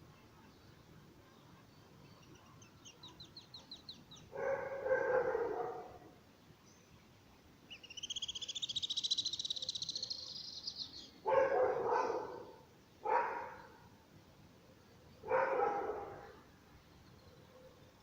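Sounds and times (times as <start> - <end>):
dog barking: 4.3 - 6.0, 11.2 - 13.8, 15.2 - 16.4.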